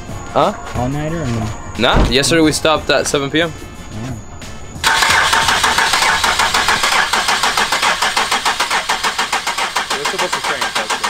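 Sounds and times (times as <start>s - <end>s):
engine cranked by starter: 4.8s - 11.0s.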